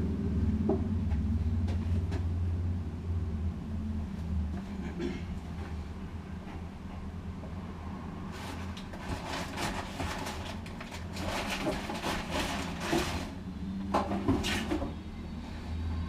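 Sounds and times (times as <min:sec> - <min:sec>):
steady low hum: 0:00.0 - 0:11.4
rustling of packaging: 0:08.3 - 0:13.4.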